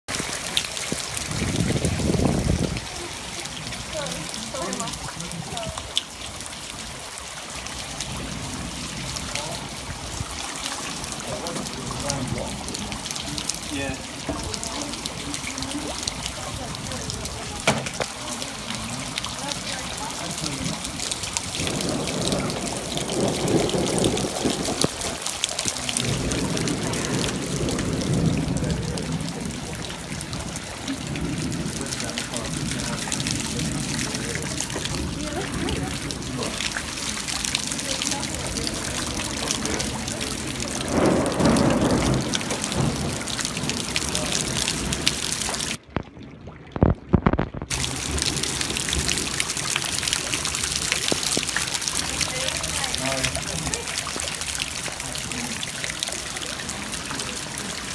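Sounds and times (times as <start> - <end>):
floodwater pouring and trickling: 0.0 - 57.9
water splashes and drips: 0.0 - 57.9
muffled low thumps: 45.8 - 47.8.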